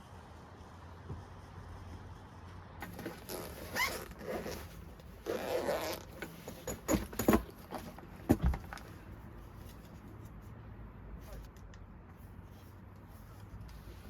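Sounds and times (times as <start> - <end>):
zipper being pulled: 2.8 - 7.0
rustling handling noise: 2.8 - 10.6, 11.2 - 14.0.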